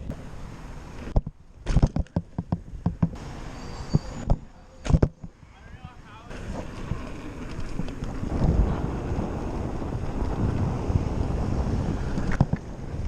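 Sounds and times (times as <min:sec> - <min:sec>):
sharp knocks: 0:01.2 - 0:03.2
wind buffeting microphone: 0:05.2 - 0:13.0.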